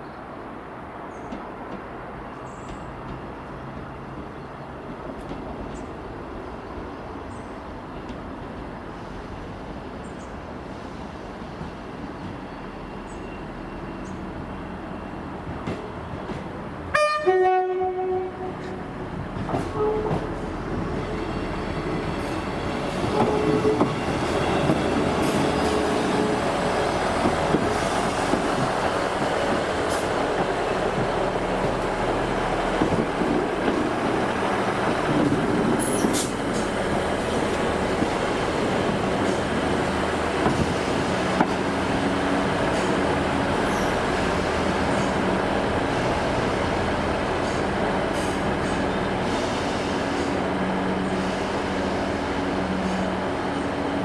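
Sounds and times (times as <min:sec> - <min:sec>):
diesel train engines: 0:00.0 - 0:54.0
train wheels on rails: 0:01.2 - 0:16.9, 0:18.1 - 0:54.0
two-tone train horn: 0:16.9 - 0:18.9, 0:19.7 - 0:20.3.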